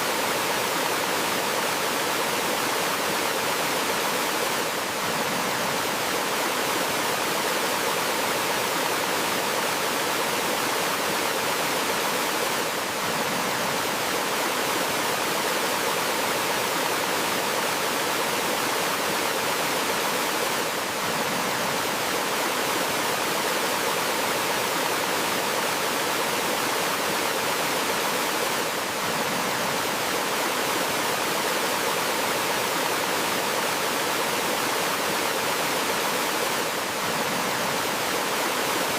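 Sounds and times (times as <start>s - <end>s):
flowing mountain stream: 0.0s - 38.9s.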